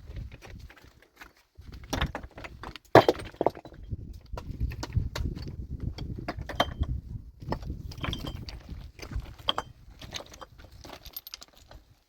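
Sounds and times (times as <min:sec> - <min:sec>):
hard objects knocking and clinking: 0:01.9 - 0:05.4, 0:06.0 - 0:11.6.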